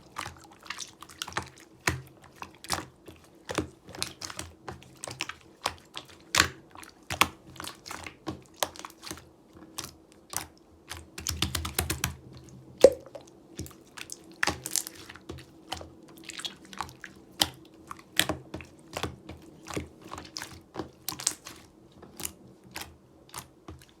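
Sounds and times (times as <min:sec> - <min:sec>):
slime sticky clicks and pops: 0:12.8 - 0:13.2.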